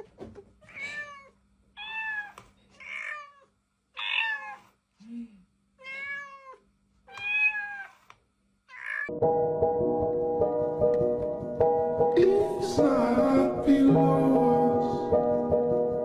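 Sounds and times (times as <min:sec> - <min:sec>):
cat meowing: 0:00.6 - 0:04.8, 0:05.8 - 0:09.1
music: 0:09.1 - 0:16.0.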